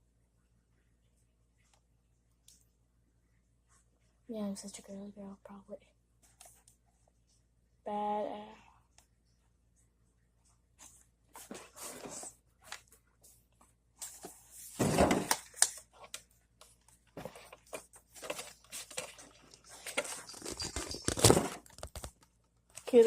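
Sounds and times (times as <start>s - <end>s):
rustling and handling noises: 6.2s - 7.6s, 8.9s - 23.0s.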